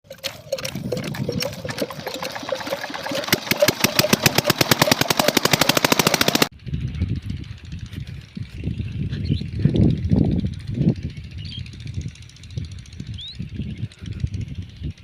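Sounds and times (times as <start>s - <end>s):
pump engine knocking: 0.0s - 6.5s.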